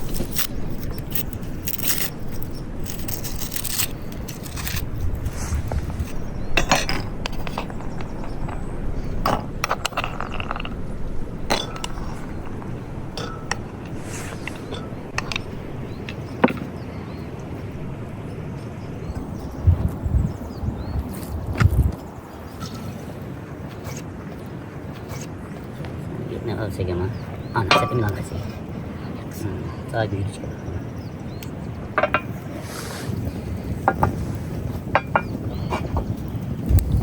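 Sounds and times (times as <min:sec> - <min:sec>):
low background rumble: 0:00.0 - 0:22.3
cooking utensils clinking: 0:27.6 - 0:28.4.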